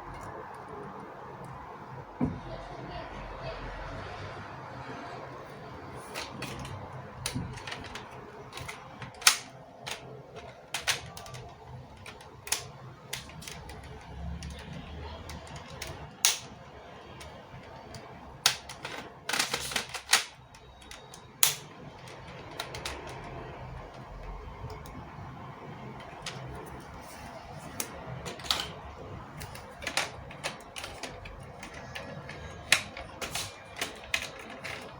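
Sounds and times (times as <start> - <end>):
plastic toy clicks and snaps: 6.1 - 16.5, 17.2 - 23.5.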